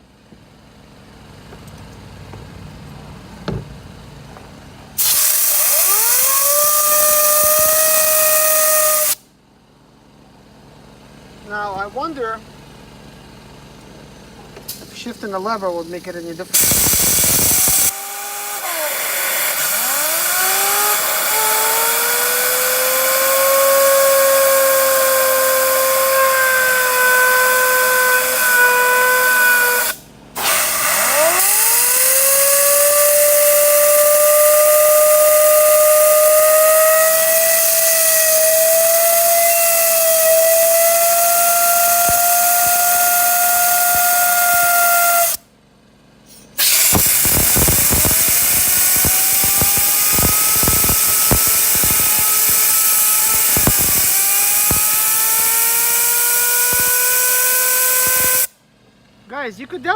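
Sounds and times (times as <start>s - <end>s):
turbocharger whine: 1.4s - 9.3s, 14.4s - 45.5s, 46.3s - 58.6s
air rushing hiss: 5.0s - 9.2s, 16.6s - 17.9s.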